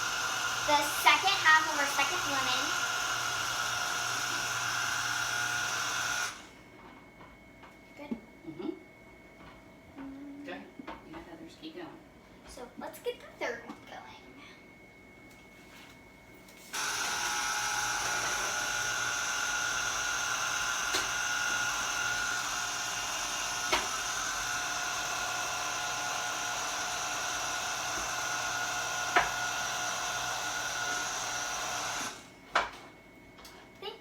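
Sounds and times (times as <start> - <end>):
juicer motor whirring: 0.0 - 6.8, 16.6 - 32.9.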